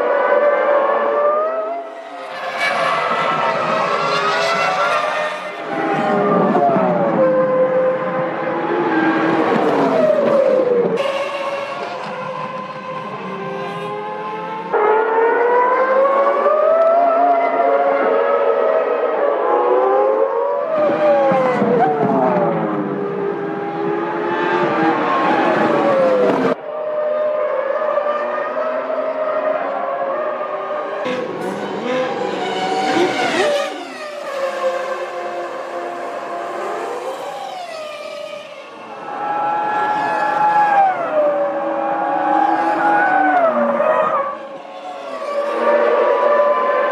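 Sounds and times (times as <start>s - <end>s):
racing car engines screaming: 0.0s - 46.9s.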